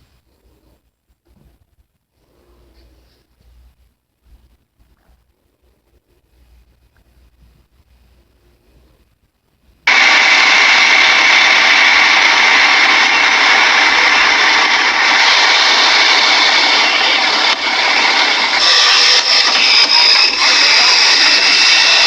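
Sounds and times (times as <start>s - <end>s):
loud steady roaring: 9.9s - 22.0s.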